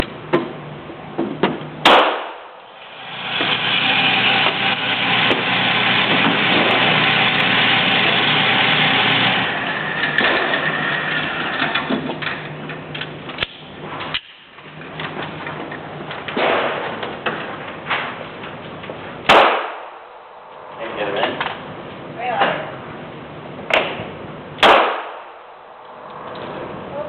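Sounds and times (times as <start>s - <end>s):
pistol shot: 1.8s - 2.6s, 16.4s - 17.0s, 19.3s - 20.2s, 24.6s - 25.6s
steady rushing noise: 16.9s - 27.0s.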